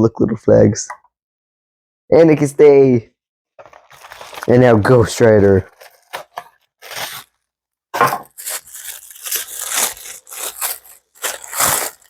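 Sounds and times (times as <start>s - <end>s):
packaging torn and crinkled: 3.6s - 7.4s, 8.0s - 12.0s.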